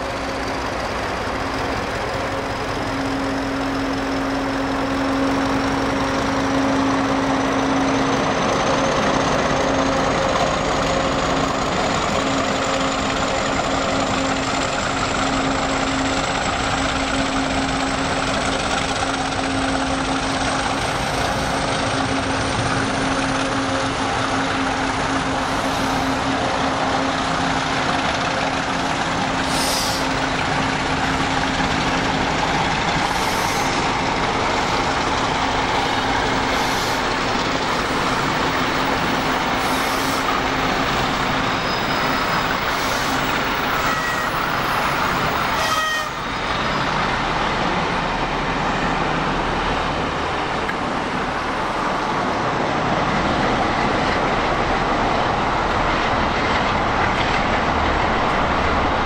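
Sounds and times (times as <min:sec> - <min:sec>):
train mechanical hum: 0:00.0 - 0:59.0
short hisses: 0:29.5 - 0:30.1.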